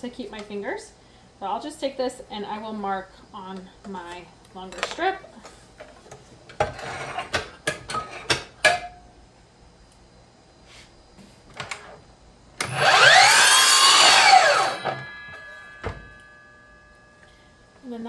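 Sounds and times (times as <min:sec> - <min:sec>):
power saw cutting wood: 0:12.6 - 0:16.2.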